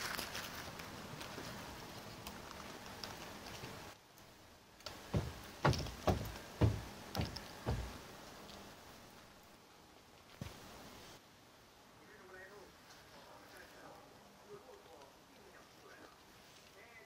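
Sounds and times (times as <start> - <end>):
faint rustling of food: 0.0 - 5.1, 12.0 - 17.0
soft chewing thuds: 4.8 - 8.7.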